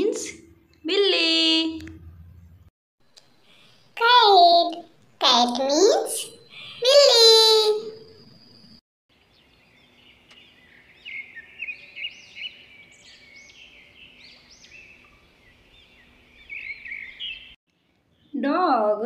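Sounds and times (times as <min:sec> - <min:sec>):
birds chirping: 0:03.1 - 0:18.6.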